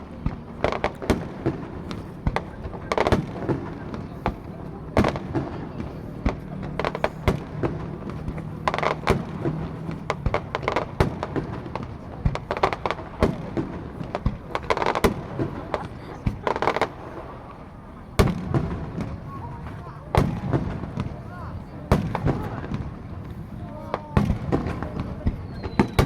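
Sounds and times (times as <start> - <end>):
fireworks bursting: 0.0 - 26.0
murmur of onlookers' voices: 0.0 - 26.0.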